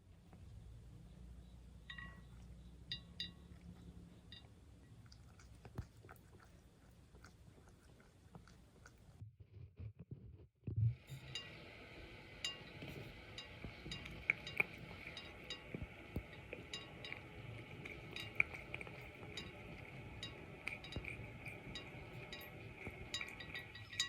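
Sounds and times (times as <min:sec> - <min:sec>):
cat lapping water: 0:01.9 - 0:09.2, 0:11.1 - 0:24.0
faint steady hiss: 0:10.9 - 0:24.0.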